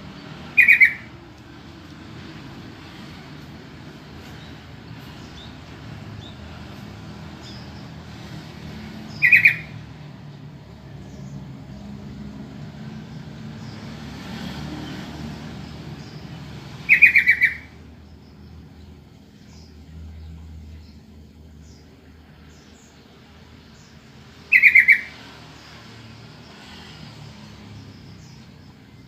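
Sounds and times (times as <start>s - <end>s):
bird calling loud notes: 0.5s - 1.2s, 9.1s - 9.8s, 16.8s - 17.8s, 24.5s - 25.2s.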